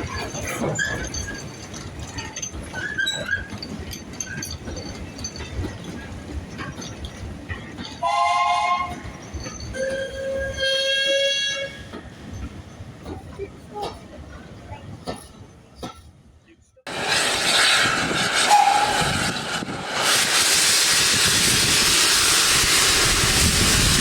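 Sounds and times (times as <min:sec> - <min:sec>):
wagons squeaking and clanking: 0:00.0 - 0:10.9
steam locomotive whistle: 0:08.0 - 0:09.0, 0:09.8 - 0:11.9, 0:16.9 - 0:24.0.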